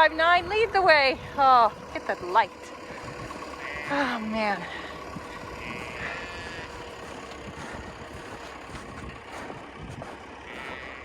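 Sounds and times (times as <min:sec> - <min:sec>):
tractor engine idling: 0:00.0 - 0:11.0
sheep bleating: 0:03.5 - 0:04.8, 0:05.4 - 0:07.8, 0:10.4 - 0:11.0.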